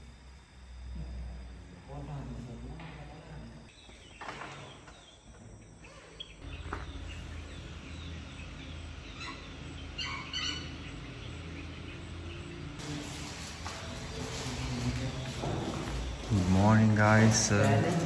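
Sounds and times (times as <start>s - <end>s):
insects calling: 0.0s - 18.0s
bird chirps: 3.7s - 12.8s.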